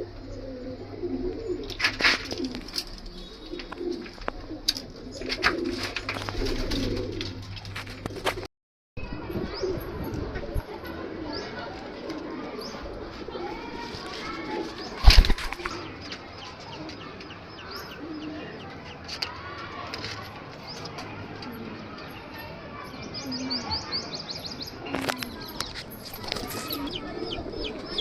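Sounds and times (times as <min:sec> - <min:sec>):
pigeons cooing: 0:00.0 - 0:08.5, 0:09.2 - 0:19.0, 0:21.2 - 0:22.1, 0:24.7 - 0:28.0
wings flapping: 0:13.9 - 0:15.9.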